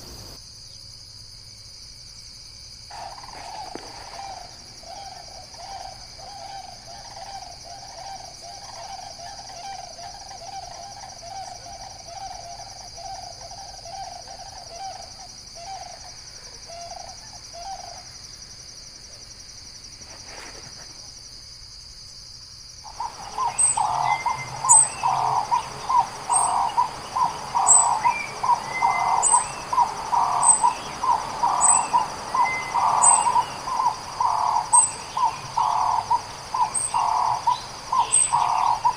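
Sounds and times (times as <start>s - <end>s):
high insect-like hum: 0.0s - 38.9s
bird hooting notes: 22.9s - 38.9s
bird trilling call: 22.9s - 38.9s
high bird chirps: 22.9s - 38.9s.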